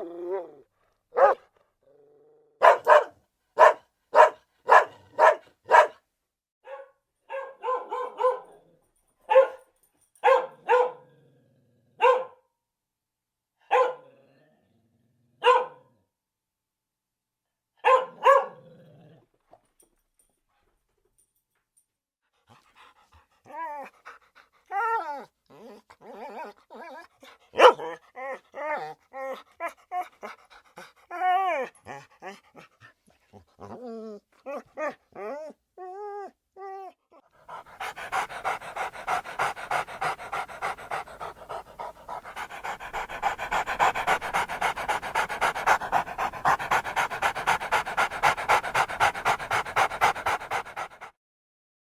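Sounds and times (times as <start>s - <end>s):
dog panting: 22.4s - 24.7s, 30.0s - 31.1s, 37.4s - 51.2s
dog whining: 24.7s - 30.1s, 33.6s - 51.0s.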